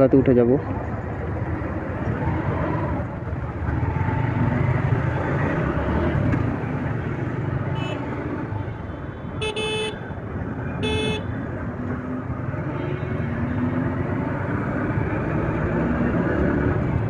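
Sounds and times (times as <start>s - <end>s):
road noise: 0.0s - 17.0s
vehicle horn honking: 9.4s - 10.0s, 10.8s - 11.3s.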